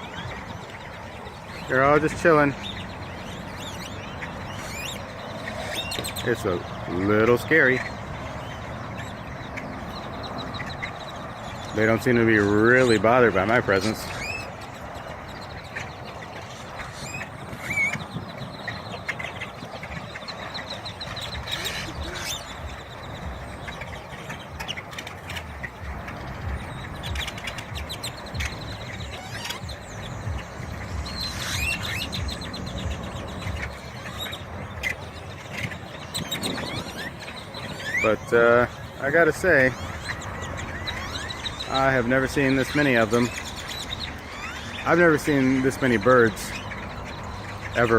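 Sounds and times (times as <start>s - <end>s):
flock of birds calling: 0.0s - 47.9s
steady traffic noise: 0.0s - 47.9s
bird whistle: 16.8s - 24.9s, 26.6s - 38.8s.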